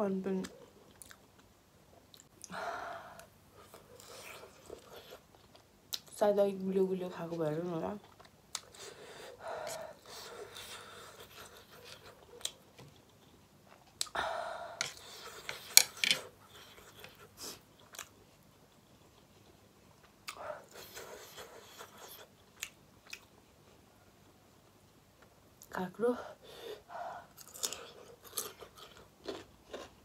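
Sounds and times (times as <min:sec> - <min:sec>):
person chewing food: 0:00.4 - 0:06.1, 0:08.0 - 0:14.2, 0:14.8 - 0:23.8, 0:27.2 - 0:30.0.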